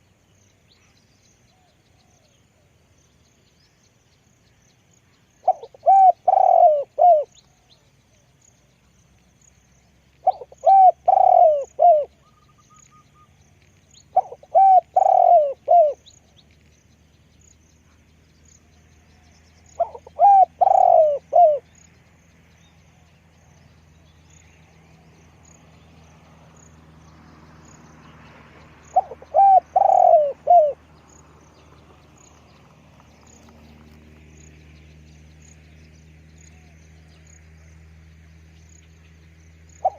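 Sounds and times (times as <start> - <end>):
dove cooing: 5.4 - 7.4, 10.2 - 12.4, 14.1 - 16.1, 19.8 - 21.7, 28.9 - 30.9.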